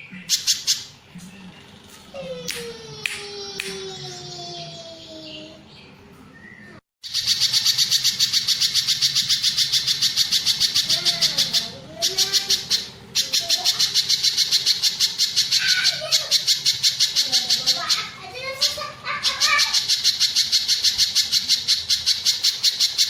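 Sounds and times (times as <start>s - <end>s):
bird trilling high notes: 6.3s - 23.0s.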